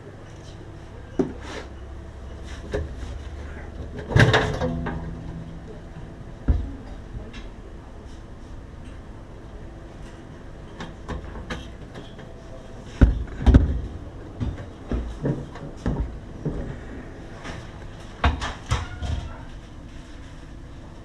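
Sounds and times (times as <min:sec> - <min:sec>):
steady low hum: 0:00.0 - 0:21.0
heavy thuds: 0:03.0 - 0:08.7
knocks and clunks: 0:03.7 - 0:07.7.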